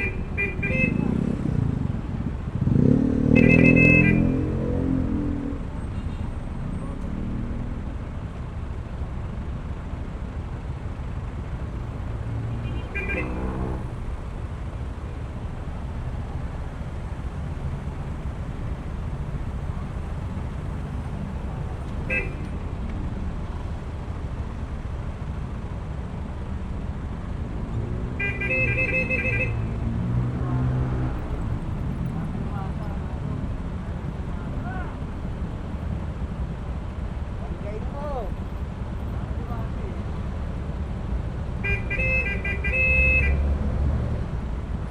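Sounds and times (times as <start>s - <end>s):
road and wind rumble: 0.0s - 44.9s
vehicle horn short high beeps: 41.7s - 43.4s.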